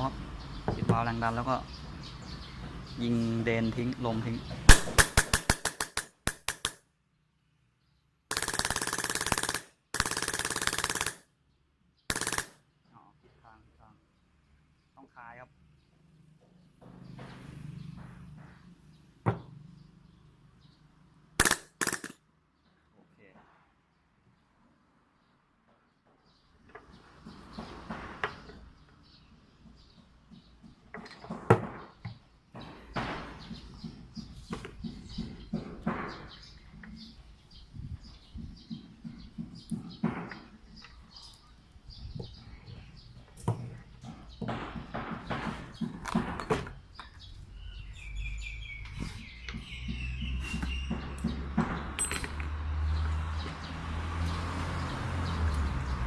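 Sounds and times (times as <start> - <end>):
airsoft gun full-auto bursts: 4.7 - 6.8, 8.3 - 11.3, 12.1 - 12.6, 21.4 - 22.2.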